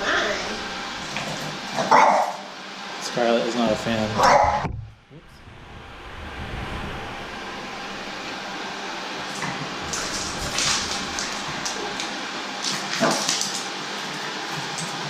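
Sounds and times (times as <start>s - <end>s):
dog barking: 1.8s - 2.5s, 4.2s - 4.7s.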